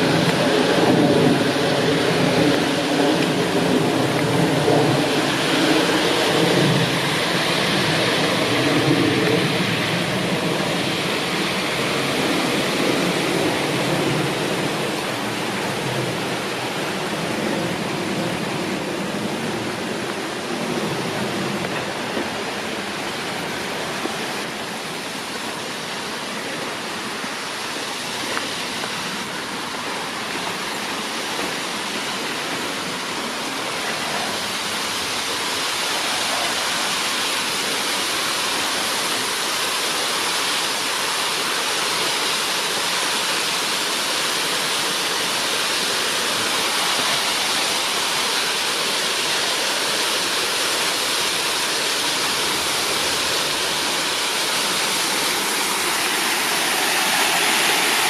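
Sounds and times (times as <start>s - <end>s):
rushing stream water: 0.0s - 58.0s.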